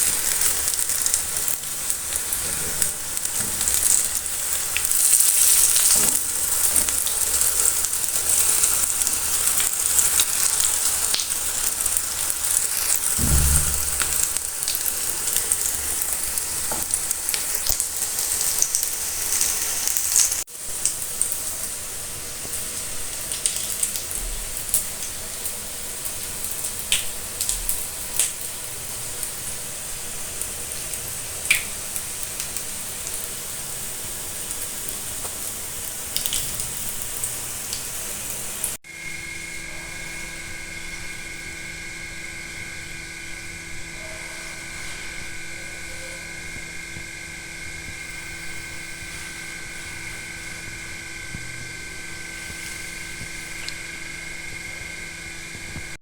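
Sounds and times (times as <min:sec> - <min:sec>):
food sizzling in hot oil: 0:00.0 - 0:39.4.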